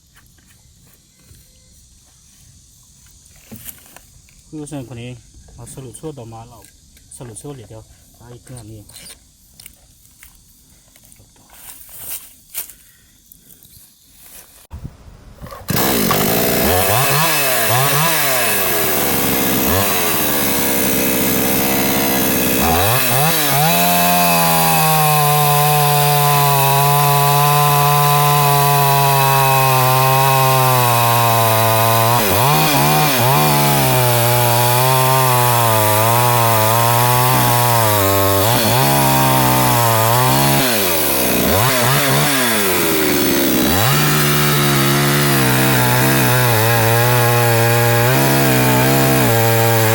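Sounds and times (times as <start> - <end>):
chainsaw revving: 15.7 - 49.9.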